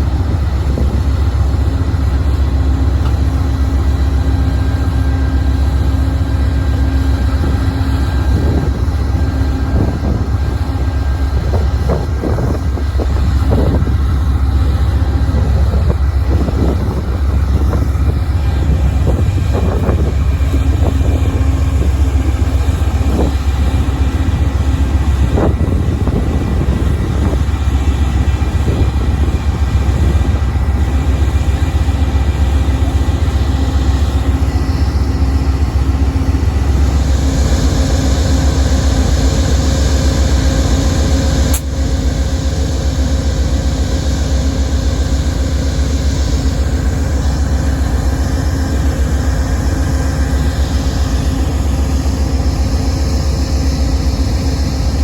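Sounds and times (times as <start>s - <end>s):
diesel locomotive idling: 0.0s - 55.0s
sharp click: 41.5s - 41.8s.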